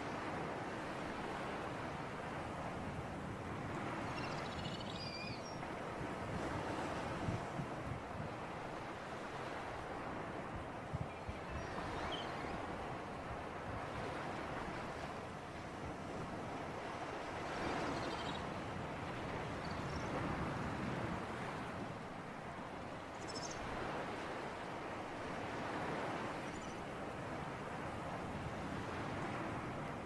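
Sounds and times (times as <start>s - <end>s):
sea waves washing ashore: 0.0s - 30.0s.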